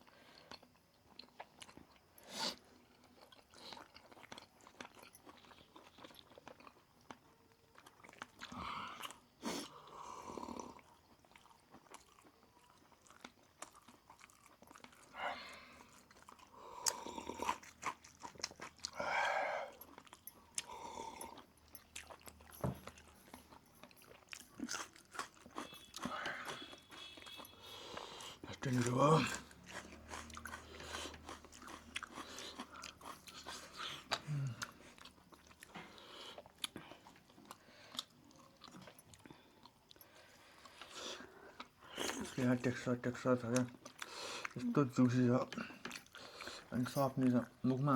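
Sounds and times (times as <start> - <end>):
person chewing crunchy food: 0.1 - 47.8.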